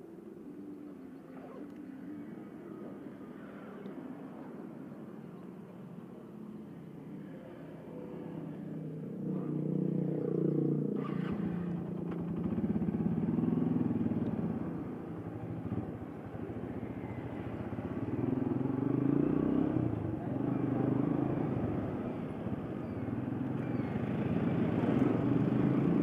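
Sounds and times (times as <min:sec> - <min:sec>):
motorcycle engine revving: 0:09.1 - 0:15.0, 0:23.3 - 0:26.0.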